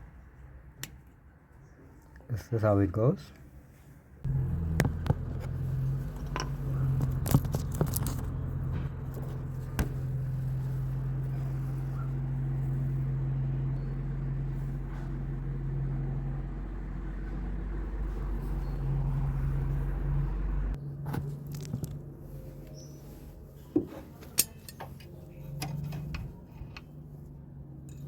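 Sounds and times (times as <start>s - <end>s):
sharp clicks and knocks: 4.3s - 10.2s
car engine idling: 4.3s - 20.8s.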